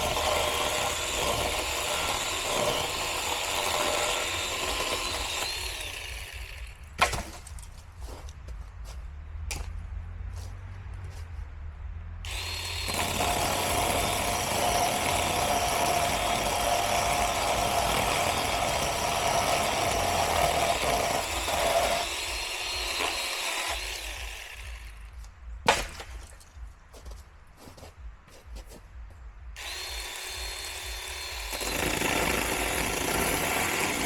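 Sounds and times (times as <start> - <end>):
electric chainsaw cutting wood: 0.0 - 7.2, 12.3 - 25.0, 29.6 - 34.0.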